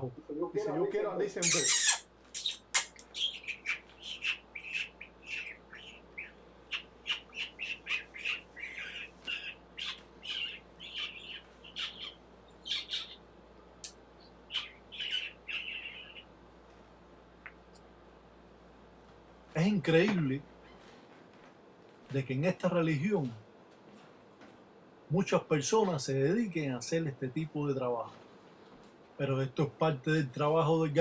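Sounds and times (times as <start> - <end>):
bird squawking and chirping: 1.4 - 13.2, 14.5 - 16.3.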